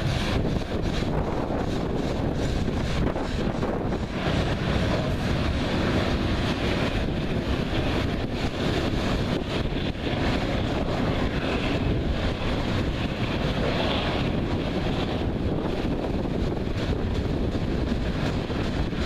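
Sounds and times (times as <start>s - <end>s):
freight cars rolling on rails: 0.0s - 19.0s
wind on the microphone: 0.0s - 19.0s.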